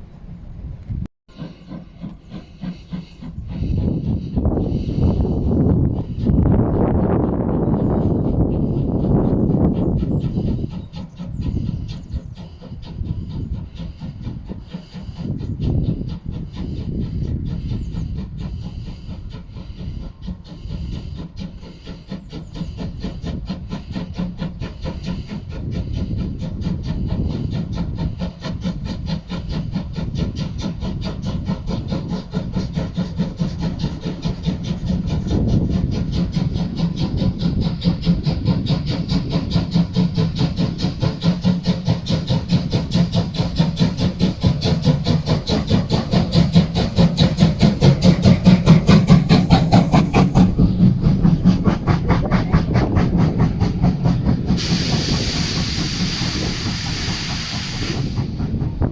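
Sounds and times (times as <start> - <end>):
steam locomotive exhaust beats: 0.0 - 58.9
steam hiss: 1.3 - 6.3, 10.0 - 58.8.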